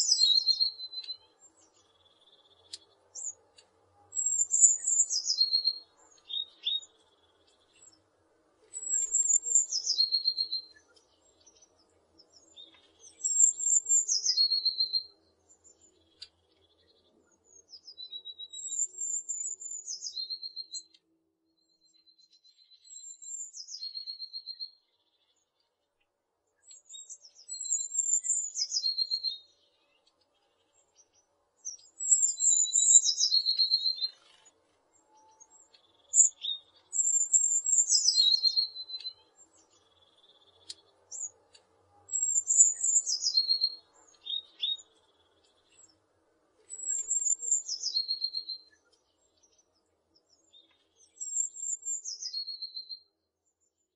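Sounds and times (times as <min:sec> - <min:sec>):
songbird singing trilling phrase: 0:00.0 - 0:03.4, 0:04.2 - 0:07.0, 0:08.8 - 0:11.0, 0:12.4 - 0:16.3, 0:17.9 - 0:21.0, 0:26.9 - 0:30.0, 0:31.9 - 0:34.3, 0:35.2 - 0:41.4, 0:42.1 - 0:45.8, 0:46.7 - 0:49.1, 0:50.4 - 0:53.1.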